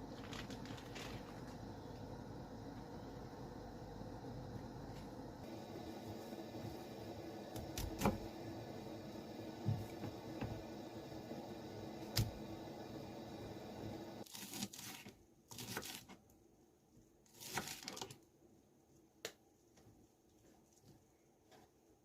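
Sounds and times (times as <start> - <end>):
low steady hum: 0.0 - 14.2
plastic packaging crinkling and tearing: 0.2 - 1.4, 14.2 - 16.1, 17.3 - 18.2.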